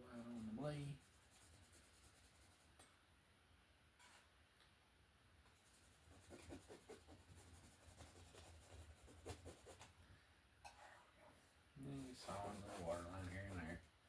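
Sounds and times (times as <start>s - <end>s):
painting knife scraping paint: 11.9s - 13.9s.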